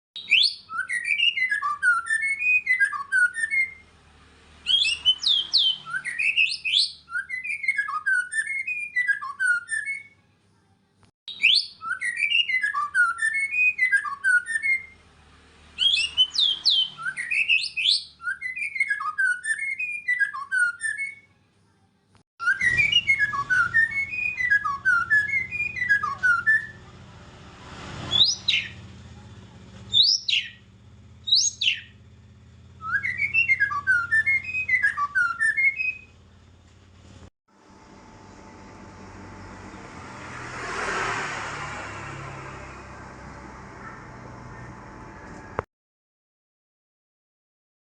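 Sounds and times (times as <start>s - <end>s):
songbird whistling song: 0.2s - 3.9s, 4.6s - 10.2s, 11.3s - 15.0s, 15.7s - 21.3s, 22.4s - 26.9s, 28.0s - 29.0s, 29.9s - 32.0s, 32.8s - 36.2s
low hum: 37.6s - 45.6s.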